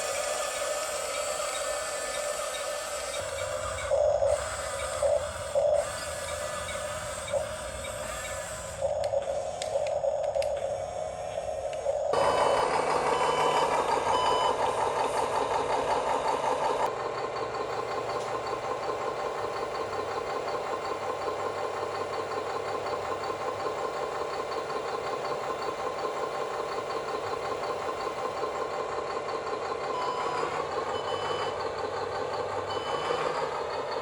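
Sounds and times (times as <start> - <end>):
scale diesel engine chugging: 0.0 - 34.0
short reversing beeps: 12.2 - 14.8, 29.9 - 31.6, 32.7 - 33.6.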